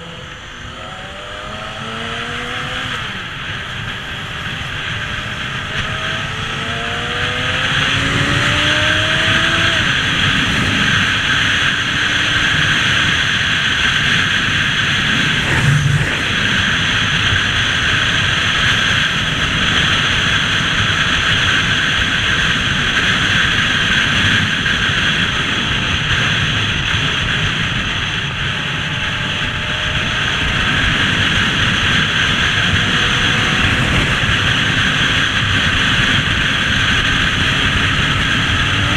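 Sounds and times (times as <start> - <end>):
motorbike engine: 0.0 - 38.9
wind and road noise: 0.0 - 38.9.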